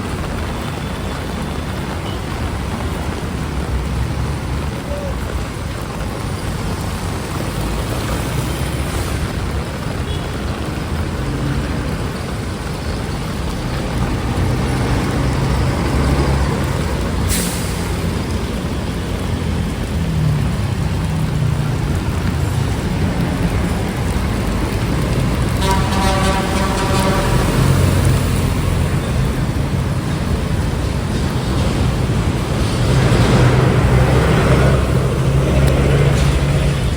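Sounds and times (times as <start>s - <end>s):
rain hiss: 0.0s - 36.9s.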